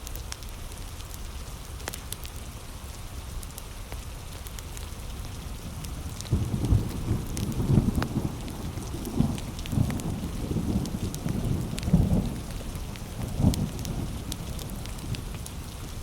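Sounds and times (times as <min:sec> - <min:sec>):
heavy rain: 0:00.0 - 0:16.0
wood fire crackling: 0:03.2 - 0:16.0.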